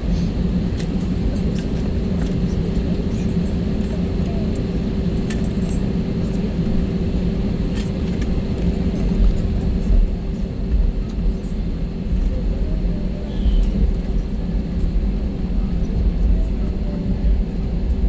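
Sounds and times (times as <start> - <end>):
jet engine cabin rumble: 0.0 - 18.0
clinks and rattles of cabin fittings: 0.8 - 6.6.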